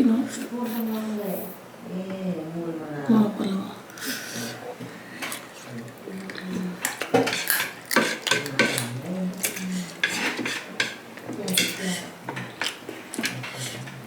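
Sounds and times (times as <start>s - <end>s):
dishes and utensils clinking: 5.2s - 14.0s.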